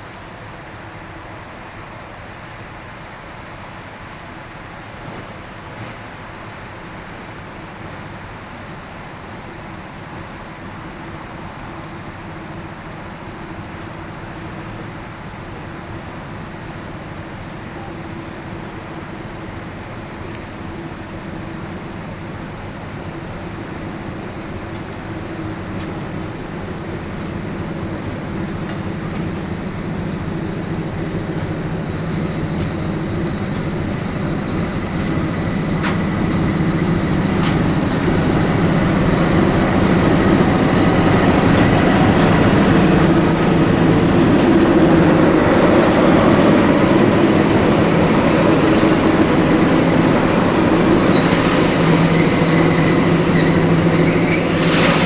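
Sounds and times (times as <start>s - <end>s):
train rumbling on rails: 0.0s - 55.0s
train wheel clicks: 23.9s - 55.0s.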